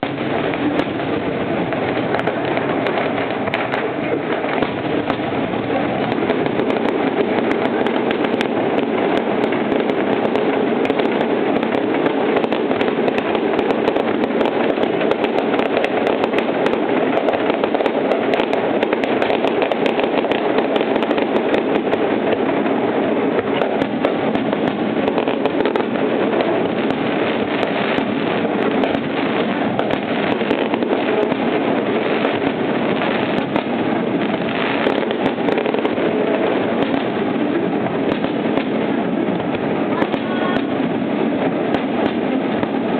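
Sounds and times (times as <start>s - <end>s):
fireworks crackling bangs: 0.0s - 42.9s.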